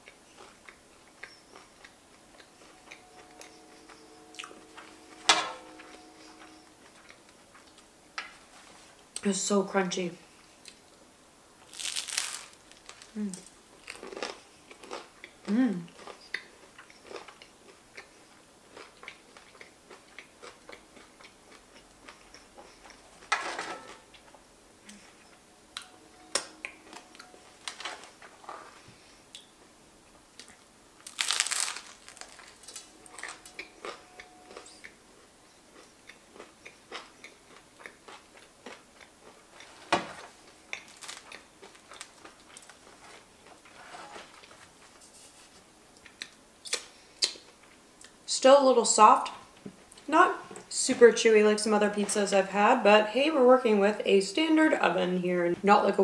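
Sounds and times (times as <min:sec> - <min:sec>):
loud crunches: 0:11.7 - 0:14.4, 0:31.0 - 0:33.4.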